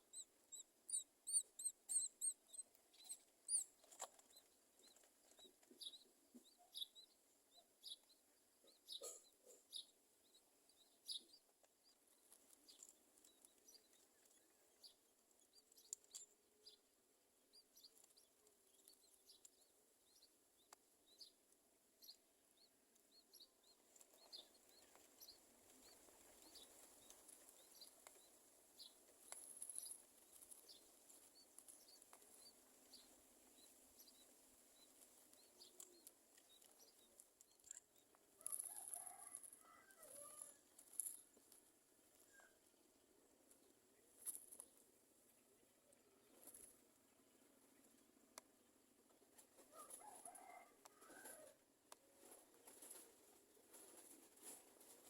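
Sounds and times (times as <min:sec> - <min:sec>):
high chirps and clicks: 0:00.1 - 0:04.4.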